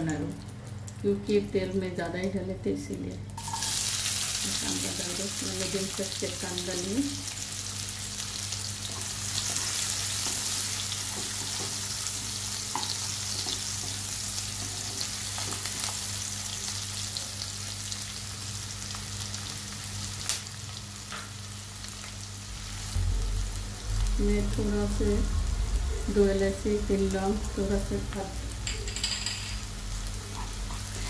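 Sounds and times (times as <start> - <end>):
onions sizzling in hot oil: 3.3 - 28.7, 29.6 - 31.0
steady low hum: 22.2 - 31.0.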